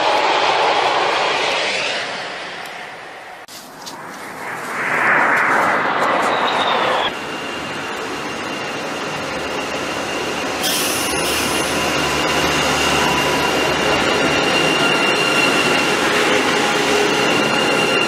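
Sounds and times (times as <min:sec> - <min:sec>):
high whine: 0:00.0 - 0:18.0
train rolling: 0:00.0 - 0:18.0
hiss: 0:10.6 - 0:11.8.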